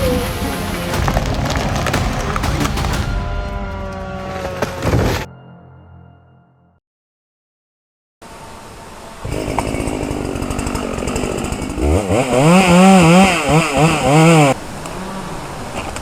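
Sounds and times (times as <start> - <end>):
chainsaw revving: 9.2 - 15.4.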